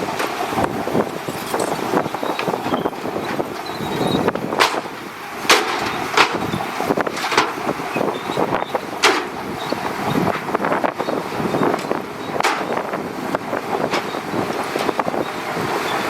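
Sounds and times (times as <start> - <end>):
bulldozer diesel engine running: 0.0 - 16.0
sharp knocks: 5.5 - 6.6, 9.0 - 9.4.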